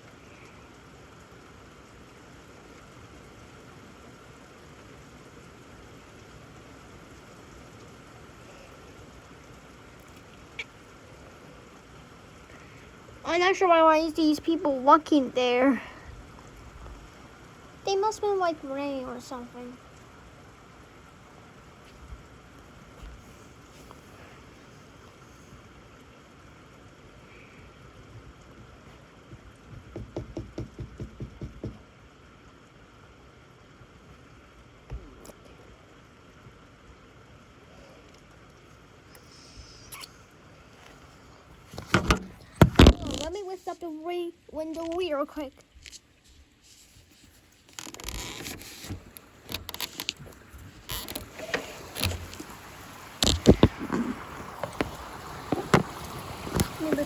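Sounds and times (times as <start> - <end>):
heavy rain: 0.0 - 57.0
window clicking and knocking: 29.6 - 31.8, 41.8 - 43.2.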